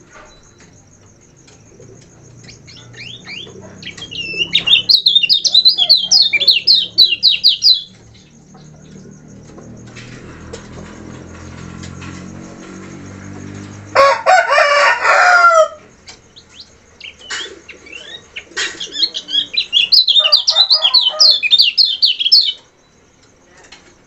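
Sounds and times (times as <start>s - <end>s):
white-eye bird chattering: 1.3s - 9.5s, 16.2s - 22.7s
bird high-pitched twittering: 1.7s - 9.3s, 16.3s - 22.7s.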